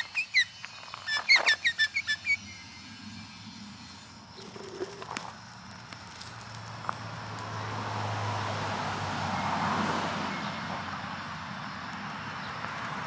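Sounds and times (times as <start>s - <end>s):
vehicle passing by: 2.8s - 13.0s.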